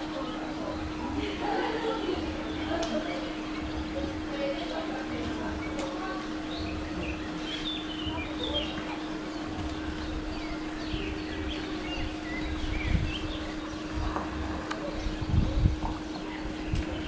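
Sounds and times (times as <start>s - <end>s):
birds chirping and singing: 0.0s - 17.0s
low rumbling: 0.0s - 17.0s
steady low hum: 0.0s - 17.0s.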